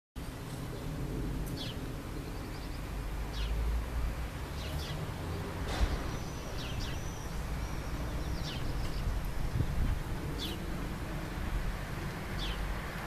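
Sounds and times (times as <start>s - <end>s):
bird chirping: 1.5s - 3.6s, 4.6s - 9.6s, 12.4s - 12.7s.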